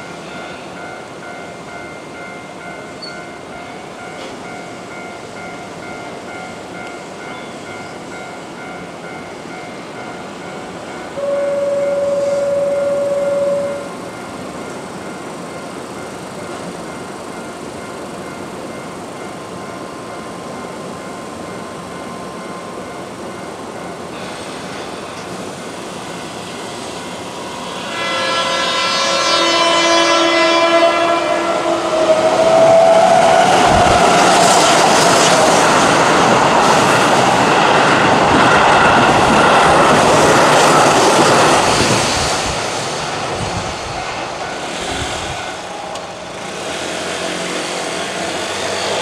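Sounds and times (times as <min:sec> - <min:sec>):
train wheels rushing on rails: 0:00.0 - 0:49.0
train horn blast: 0:11.2 - 0:14.0, 0:27.6 - 0:33.8.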